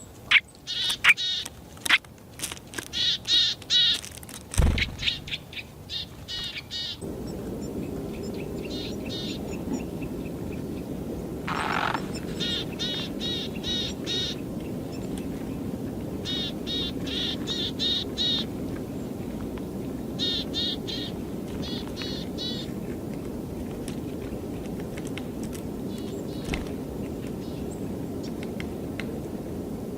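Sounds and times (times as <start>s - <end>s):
bird whistling notes: 4.6s - 5.7s
steady low rumble: 4.6s - 6.3s, 7.0s - 16.2s.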